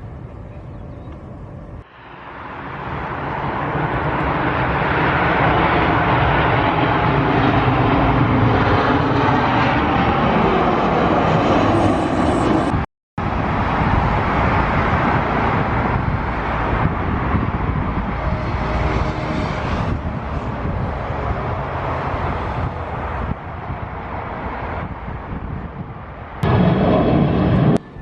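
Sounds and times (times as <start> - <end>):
jet airliner engines: 0.0 - 28.0.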